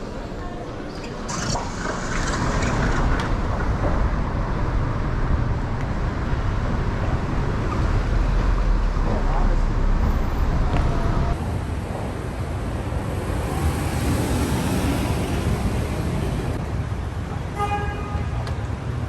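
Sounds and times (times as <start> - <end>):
vehicle rumble: 0.0 - 17.6.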